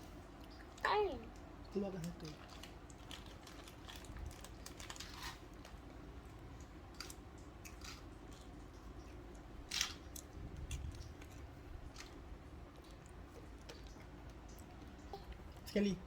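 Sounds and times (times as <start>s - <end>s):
packaging crinkling: 2.4s - 5.8s.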